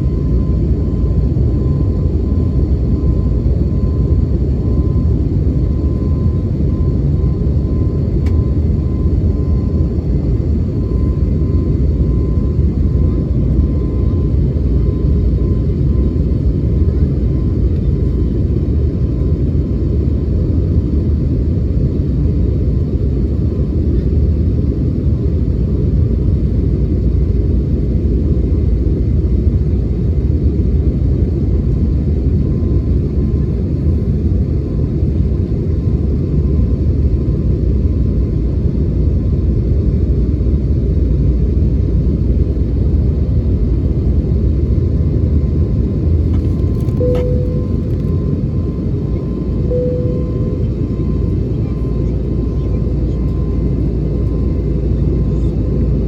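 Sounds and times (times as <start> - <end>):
airplane cabin roar: 0.0 - 56.0
faint steady tone: 46.8 - 54.5.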